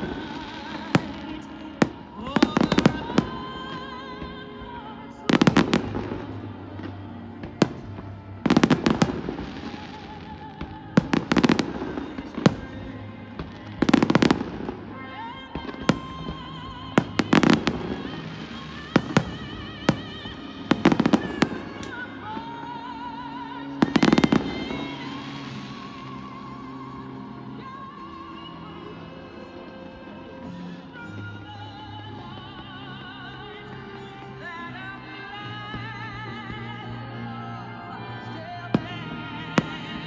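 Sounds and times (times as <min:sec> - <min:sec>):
fireworks bangs and crackles: 0:00.0 - 0:30.1, 0:38.0 - 0:40.0
music playing: 0:00.0 - 0:40.0.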